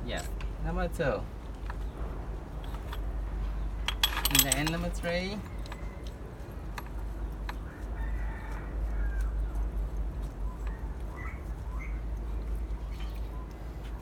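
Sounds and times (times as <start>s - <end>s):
steady low rumble: 0.0s - 8.0s
metallic clicks of hand tools: 3.9s - 6.2s.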